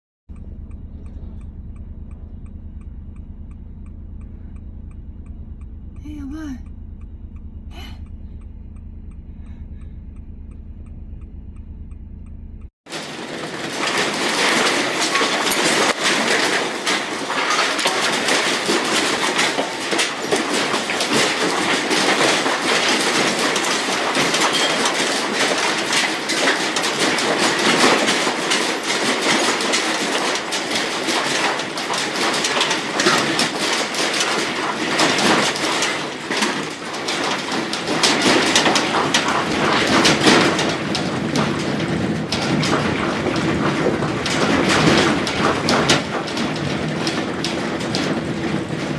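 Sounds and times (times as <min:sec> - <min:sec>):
steady noisy rumble: 0:00.3 - 0:12.7
building rattling in earthquake: 0:12.9 - 0:48.9.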